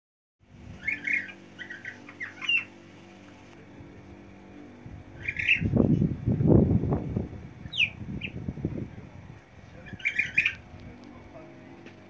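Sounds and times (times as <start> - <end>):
steady low hum: 0.4 - 12.0
small bird chirping: 0.8 - 3.4, 5.1 - 6.1, 7.6 - 8.4, 9.8 - 10.7.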